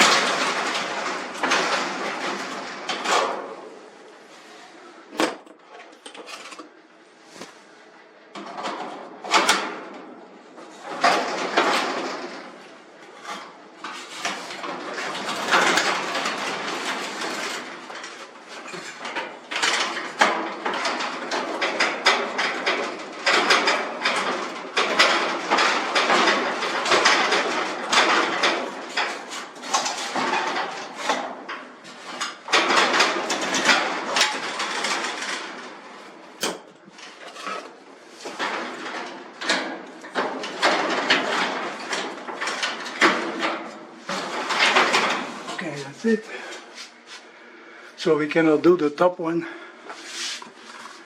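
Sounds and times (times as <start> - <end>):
metal clanks and knocks: 0.0 - 4.0, 5.1 - 6.8, 8.3 - 47.2
metal scraping: 49.9 - 51.0.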